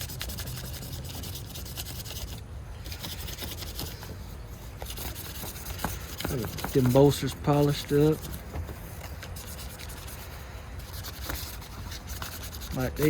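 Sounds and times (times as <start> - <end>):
hands rubbing and scratching knife: 4.8 - 8.3.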